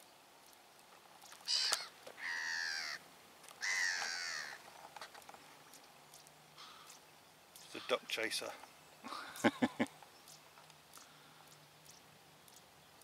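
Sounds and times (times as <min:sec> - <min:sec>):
bird calling harshly: 0:01.4 - 0:03.0, 0:03.6 - 0:04.6, 0:06.6 - 0:07.0.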